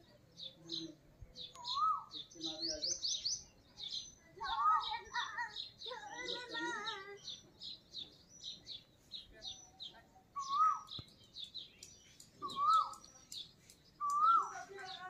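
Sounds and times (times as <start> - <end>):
small birds chirping: 0.0 - 15.0
whistled bird call rising and falling: 10.4 - 11.1, 12.4 - 13.3, 14.0 - 14.5.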